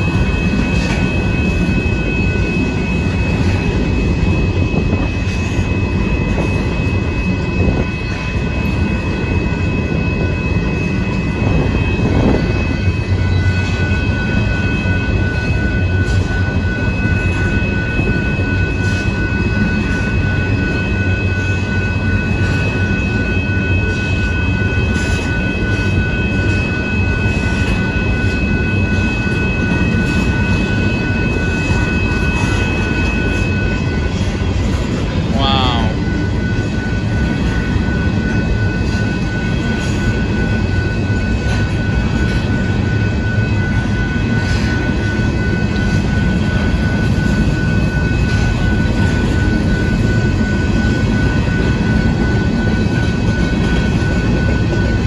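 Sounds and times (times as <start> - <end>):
lower tone: 0.0 - 55.0
steady high tone: 0.0 - 55.0
train wheels rumbling on rail: 0.0 - 55.0.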